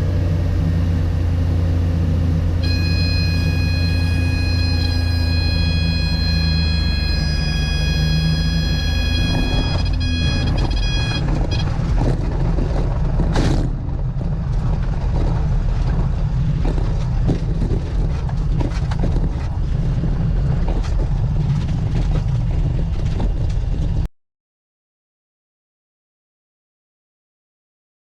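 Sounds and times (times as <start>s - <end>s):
light aircraft engine rumble: 0.0s - 24.1s
knocks and rattles: 6.6s - 24.1s.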